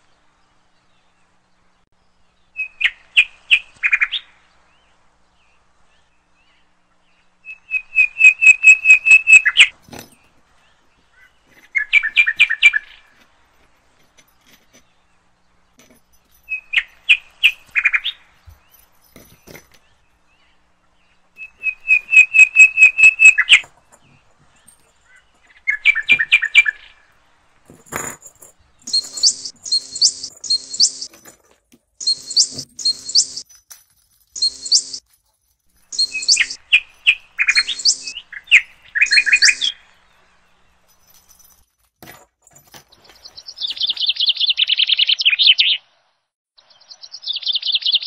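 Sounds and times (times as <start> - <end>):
bird chirping rapidly: 7.3 - 9.8, 11.1 - 13.1, 20.4 - 23.7, 28.7 - 31.1, 32.0 - 33.5, 34.4 - 35.0, 35.9 - 40.3, 43.0 - 45.9, 46.6 - 48.0.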